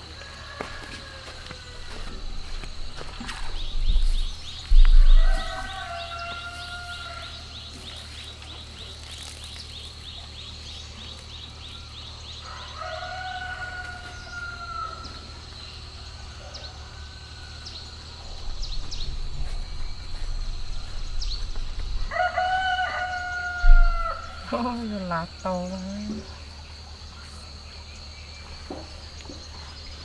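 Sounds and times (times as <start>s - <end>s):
rooster crowing: 0.0s - 2.2s, 5.0s - 7.5s, 12.4s - 15.3s, 22.0s - 24.6s
low rumble: 2.2s - 5.6s.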